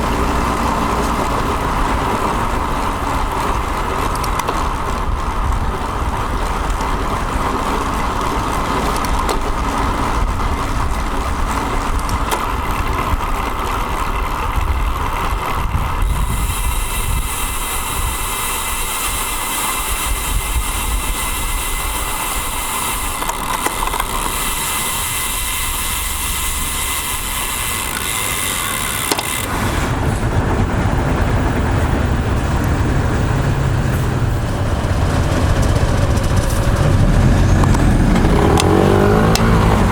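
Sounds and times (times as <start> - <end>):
wind rushing over microphone: 0.0 - 27.9, 29.4 - 39.9
passing motor traffic: 0.0 - 39.9
road noise: 0.0 - 39.9
high hiss: 16.1 - 23.2
deep rumble: 29.6 - 39.9.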